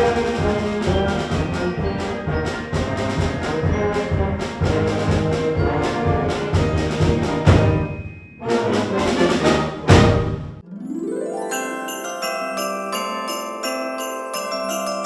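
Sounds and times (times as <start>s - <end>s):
band playing with brass: 0.0s - 10.3s
sharp percussion accents: 0.1s - 9.2s, 10.6s - 15.0s.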